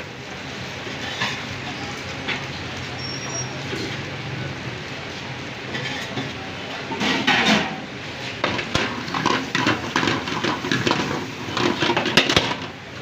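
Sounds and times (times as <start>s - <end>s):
kitchen noise: 0.8s - 4.0s, 5.6s - 13.0s
metal utensils clattering on a pan: 1.0s - 1.5s, 5.7s - 12.8s.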